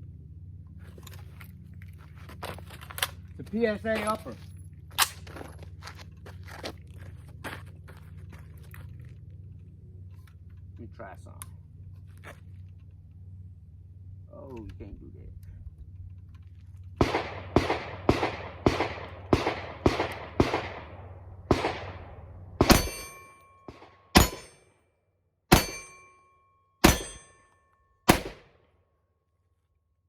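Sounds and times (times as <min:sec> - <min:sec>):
pistol shots: 0:17.0 - 0:24.6, 0:25.5 - 0:26.1, 0:26.8 - 0:27.4, 0:28.1 - 0:28.6
short metallic ring: 0:22.7 - 0:24.7, 0:25.5 - 0:28.1.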